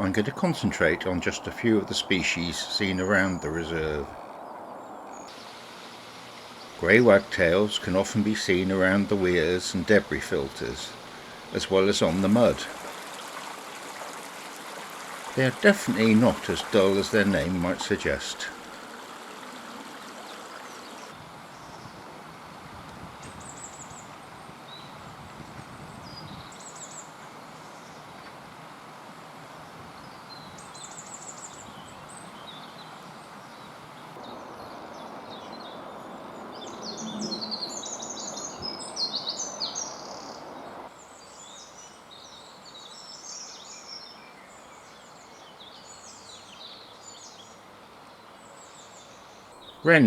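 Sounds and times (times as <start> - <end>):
flowing water: 0.0 - 23.1
small birds singing: 0.0 - 28.4, 29.6 - 50.0.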